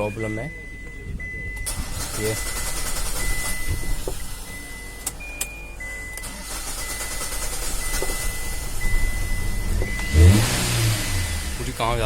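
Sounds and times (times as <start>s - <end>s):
car engine cranking: 0.0s - 12.0s.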